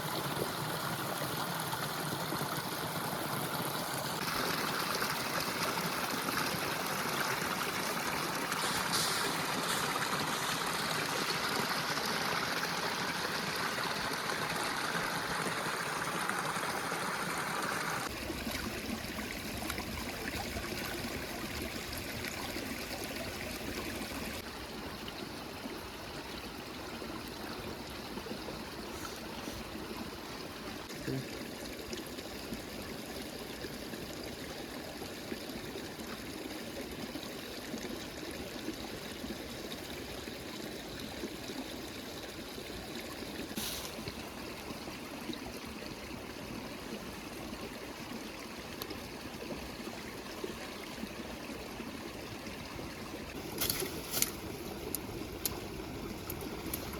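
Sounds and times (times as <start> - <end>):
river water rushing: 0.0 - 18.4.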